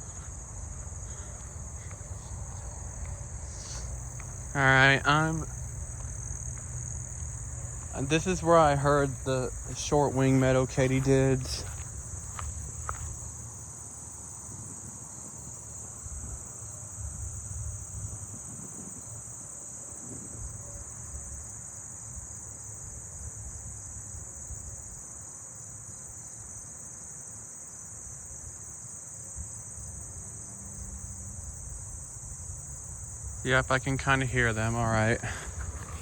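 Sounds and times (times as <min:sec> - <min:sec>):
soft repeating katydid pulse: 0:00.0 - 0:13.9, 0:33.2 - 0:36.0
crickets and katydids chirping: 0:00.0 - 0:36.0.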